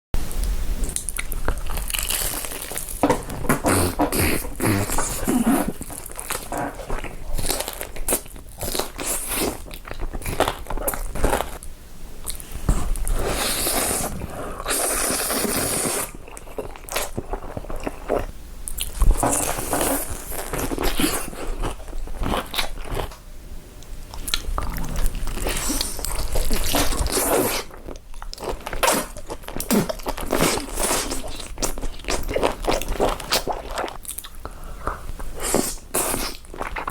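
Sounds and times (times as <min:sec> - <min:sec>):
person chewing crunchy food: 0:00.8 - 0:23.2, 0:23.8 - 0:36.9.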